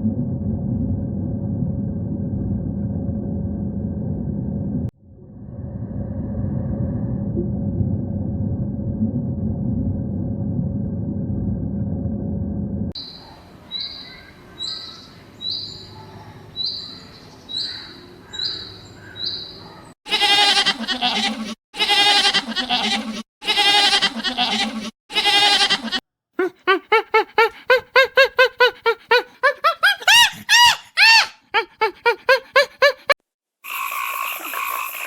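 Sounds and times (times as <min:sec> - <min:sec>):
long pitched animal calls: 0:25.3 - 0:35.0.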